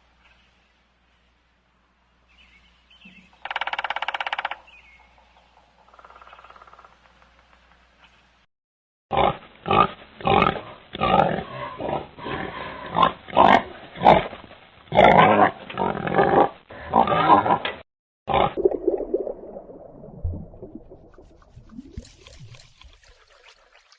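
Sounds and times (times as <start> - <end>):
pig grunting and oinking: 9.1 - 14.3, 14.9 - 18.6.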